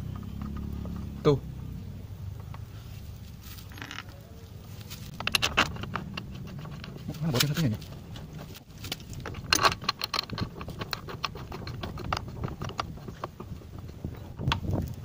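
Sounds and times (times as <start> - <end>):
metal tools clinking: 3.6 - 4.2.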